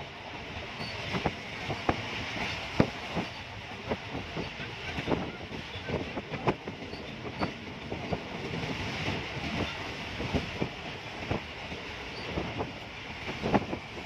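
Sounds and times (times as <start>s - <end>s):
train rushing rumble: 0.0s - 14.0s.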